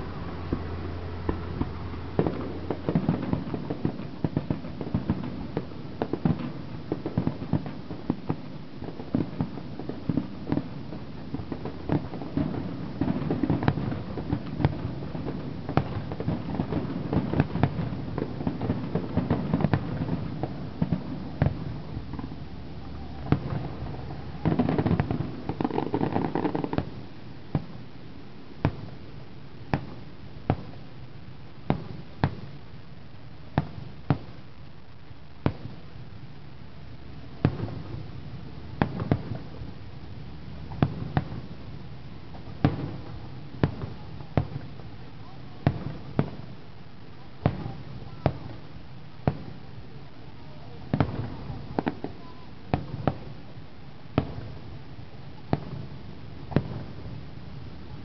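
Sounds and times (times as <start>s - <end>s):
continuous rumble: 0.0s - 58.0s
fireworks bursting in sharp bangs: 0.0s - 58.0s.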